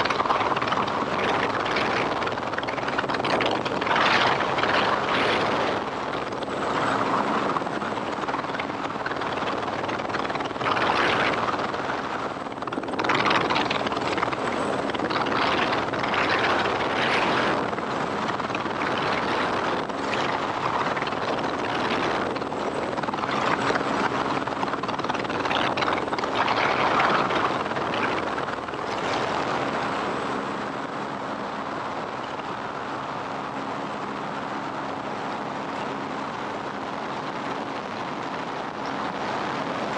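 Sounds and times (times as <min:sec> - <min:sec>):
helicopter engine and rotor: 0:05.9 - 0:10.4, 0:11.4 - 0:15.9.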